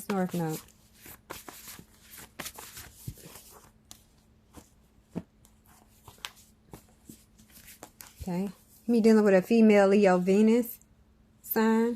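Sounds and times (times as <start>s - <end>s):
cards being shuffled: 0.0s - 8.5s.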